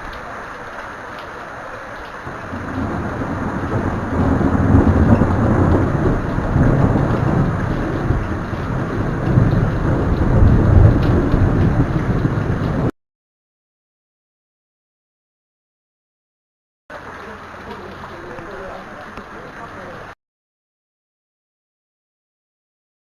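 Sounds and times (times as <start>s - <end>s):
rain hiss: 0.0s - 12.9s, 16.9s - 20.2s
thunder rumbling: 2.0s - 12.9s.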